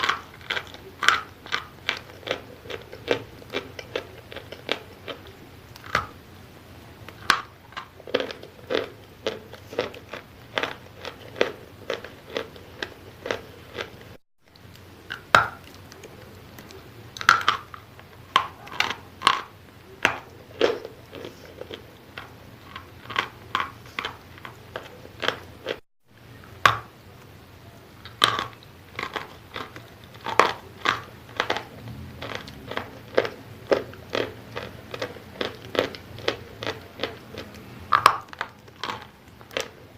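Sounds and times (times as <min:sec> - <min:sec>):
chalk crunching while chewed: 0:00.0 - 0:25.8, 0:28.0 - 0:39.9.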